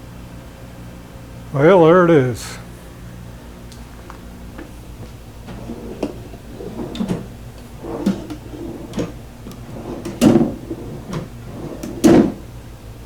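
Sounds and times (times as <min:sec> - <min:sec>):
drawer slides rolling rattles: 0:05.4 - 0:12.6
drawer closing thump: 0:05.5 - 0:12.4.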